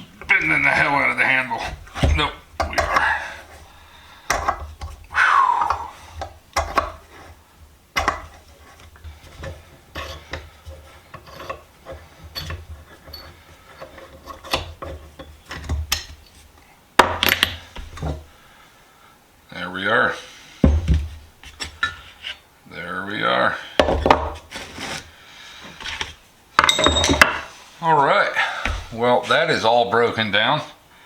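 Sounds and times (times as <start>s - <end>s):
metal vise parts knocking: 1.7s - 3.2s, 8.0s - 16.4s, 25.9s - 27.5s.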